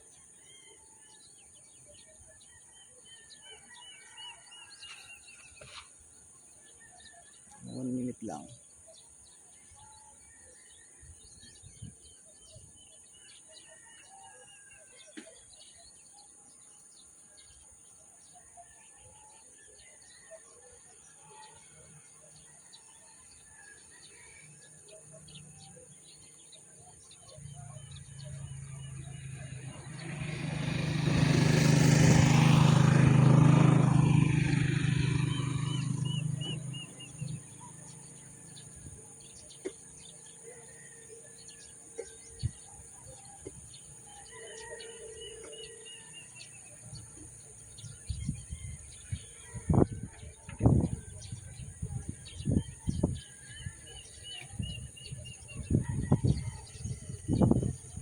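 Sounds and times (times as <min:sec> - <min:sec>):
birds chirping: 0:00.0 - 0:10.7, 0:15.0 - 0:58.0
vehicle engine passing: 0:27.4 - 0:40.0.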